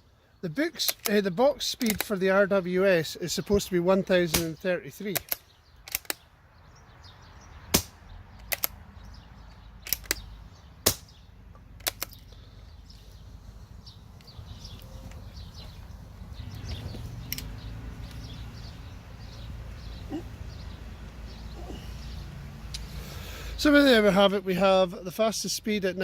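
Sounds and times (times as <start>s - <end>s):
birds chirping faintly: 0.0s - 26.0s
rifle bolt clicking: 1.8s - 2.1s, 5.2s - 6.2s, 8.4s - 8.8s, 9.8s - 10.2s, 11.8s - 12.2s.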